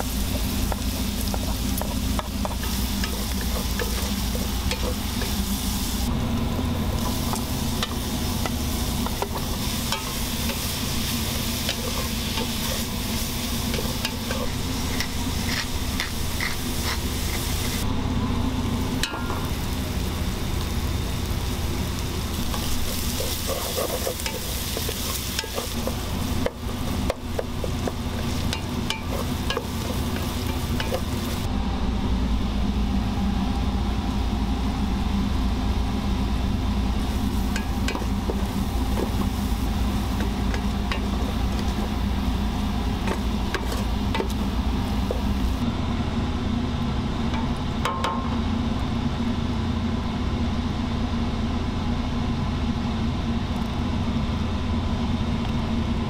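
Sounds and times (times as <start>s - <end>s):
bacon and onions sizzling: 0.0s - 17.9s, 18.6s - 31.5s, 36.9s - 45.6s
steady low hum: 0.0s - 56.0s.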